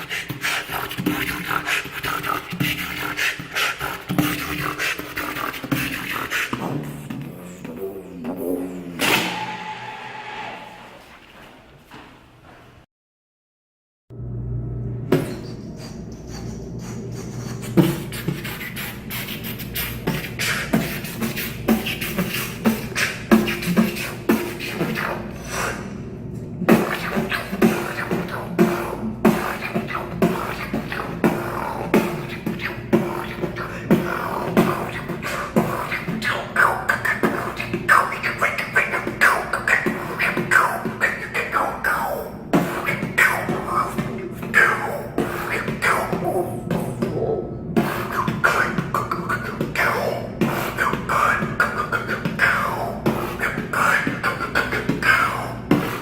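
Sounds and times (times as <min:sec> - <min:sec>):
person beatboxing: 0:00.0 - 0:10.8, 0:15.1 - 0:26.0, 0:26.6 - 0:56.0
steady held tone: 0:07.4 - 0:11.2.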